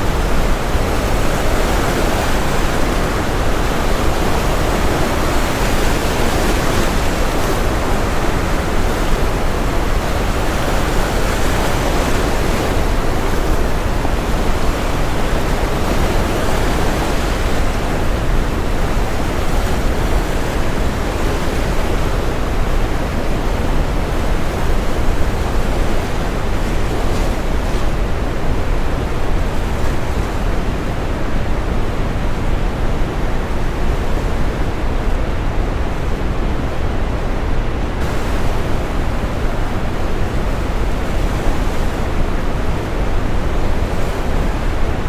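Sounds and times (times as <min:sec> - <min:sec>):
ocean waves breaking: 0:00.0 - 0:45.0
brown noise: 0:30.4 - 0:45.0.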